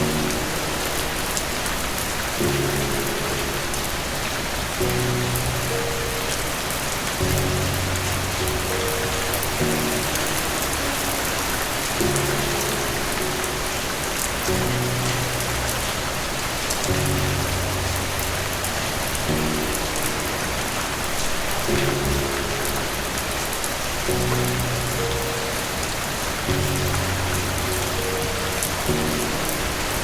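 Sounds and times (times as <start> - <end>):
soft low music notes: 0.0 - 30.0
steady rain falling: 0.0 - 30.0.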